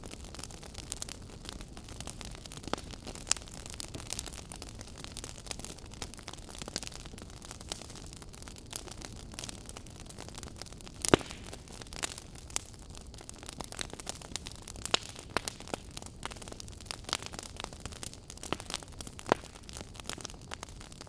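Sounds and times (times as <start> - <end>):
wood snapping and popping: 11.0 - 12.2, 18.4 - 20.2.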